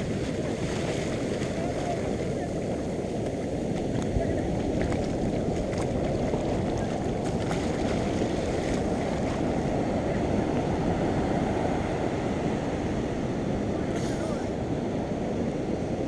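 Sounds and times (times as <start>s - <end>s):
sea surf: 0.0s - 16.0s
wind buffeting microphone: 0.0s - 16.0s.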